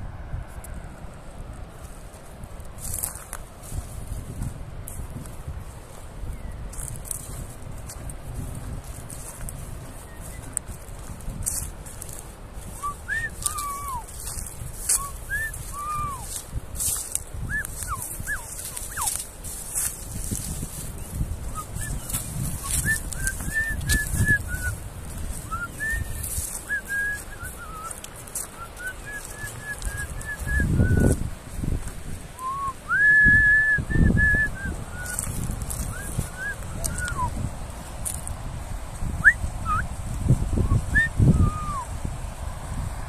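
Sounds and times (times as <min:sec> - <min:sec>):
wind rumble on microphone: 0:00.0 - 0:43.0
birds whistled chirps: 0:09.9 - 0:10.6, 0:12.8 - 0:19.2, 0:21.0 - 0:24.8, 0:25.4 - 0:31.2, 0:32.4 - 0:37.4.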